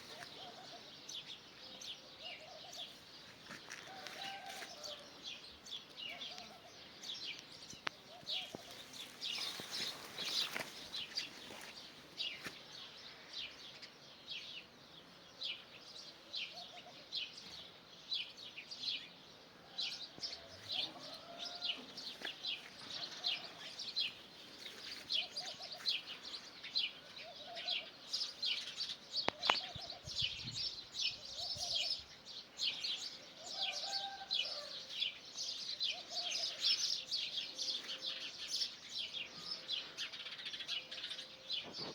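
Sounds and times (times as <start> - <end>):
birds chirping: 0.0 - 41.9.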